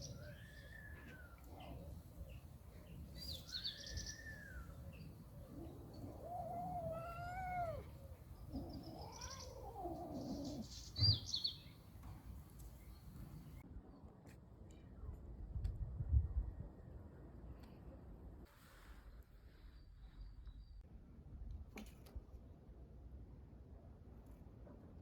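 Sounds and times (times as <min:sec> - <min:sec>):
birds chirping: 0:00.0 - 0:13.6
cat yowling: 0:05.5 - 0:10.7.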